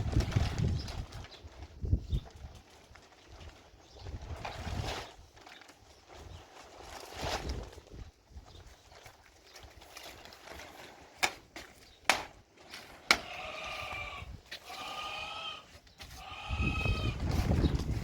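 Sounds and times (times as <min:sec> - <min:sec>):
small livestock bleating: 0:13.1 - 0:17.3.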